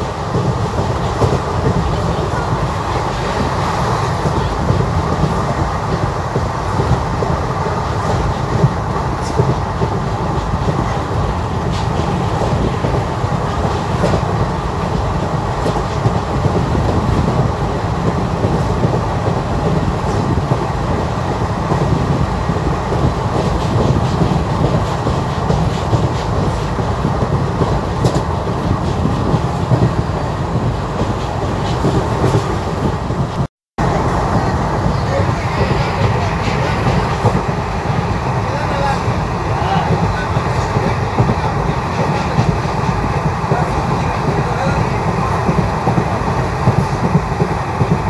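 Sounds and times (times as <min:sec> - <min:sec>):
train wheels rumbling on rails: 0:00.0 - 0:48.0
faint clicks of rails: 0:22.9 - 0:30.1.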